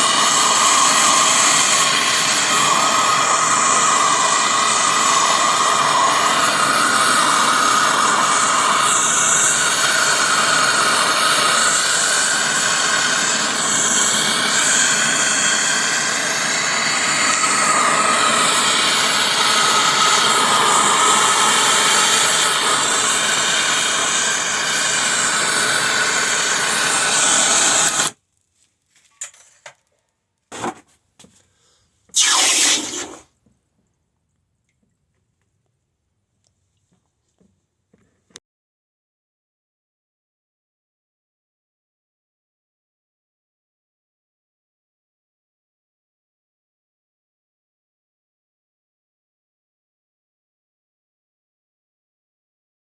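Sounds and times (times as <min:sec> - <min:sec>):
gas torch flame rushing: 0:00.0 - 0:28.2, 0:32.2 - 0:33.2.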